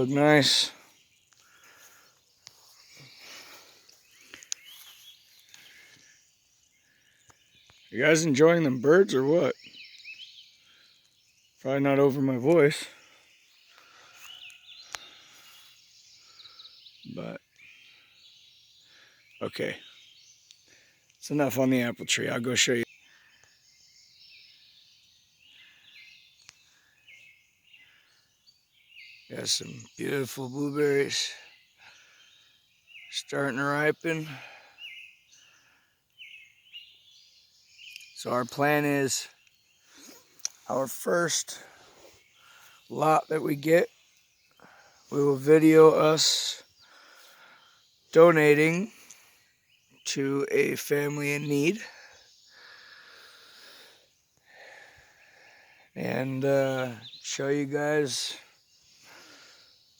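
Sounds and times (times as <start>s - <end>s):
distant birds chirping: 0.0s - 59.9s.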